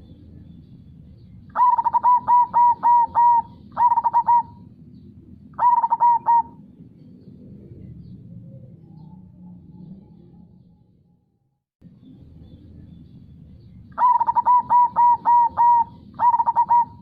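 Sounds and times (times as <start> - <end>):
dove cooing: 1.5 - 4.7, 5.6 - 6.7, 14.0 - 17.0.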